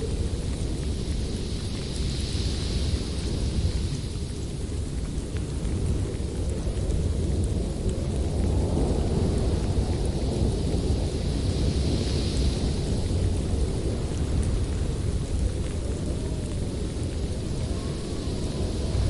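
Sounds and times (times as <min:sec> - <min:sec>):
howling wind: 0:00.0 - 0:19.0
high wind whistle: 0:14.9 - 0:19.0.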